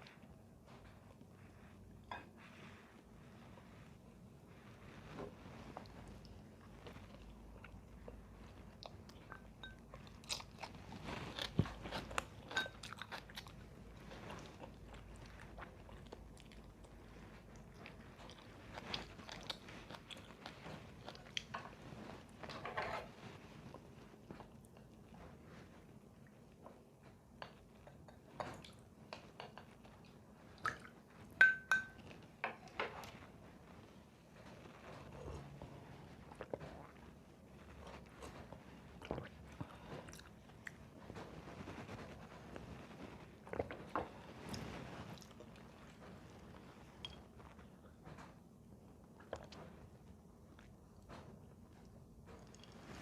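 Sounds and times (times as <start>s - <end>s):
person chewing crunchy food: 5.8s - 22.1s, 35.0s - 37.1s, 37.7s - 47.6s.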